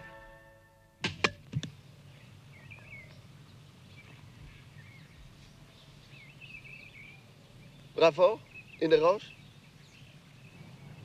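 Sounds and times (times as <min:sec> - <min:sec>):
sharp knocks: 0:01.0 - 0:01.7
birds chirping faintly: 0:01.3 - 0:11.0.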